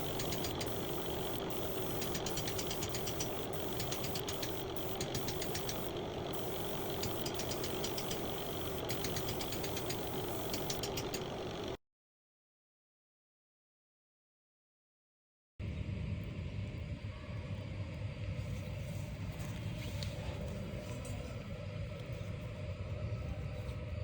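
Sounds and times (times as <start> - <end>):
fast clicking rattle: 0.0 - 11.8
power tool motor running: 0.0 - 11.8.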